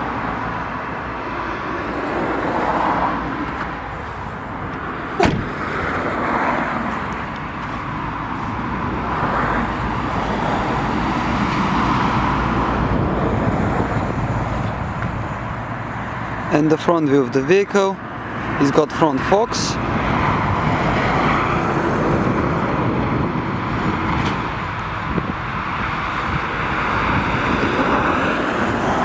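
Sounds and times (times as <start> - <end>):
cars passing: 0.0 - 29.0
sharp knock: 5.2 - 5.6.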